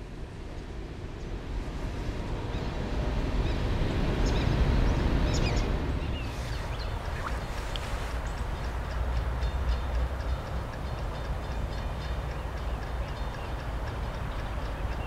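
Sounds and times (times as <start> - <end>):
train rumbling by: 0.0 - 15.0
wind on microphone: 0.3 - 9.4.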